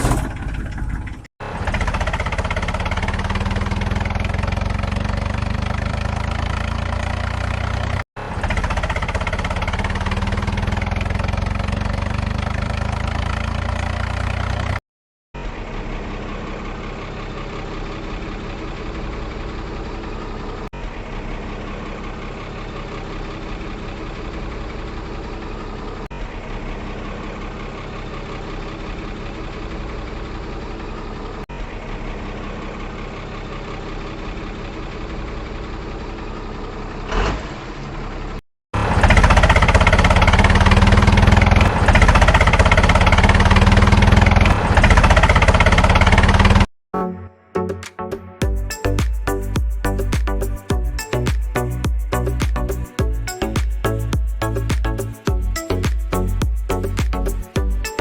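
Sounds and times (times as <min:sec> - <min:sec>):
engine running: 0:00.0 - 0:14.8, 0:38.8 - 0:46.7, 0:48.4 - 0:58.0.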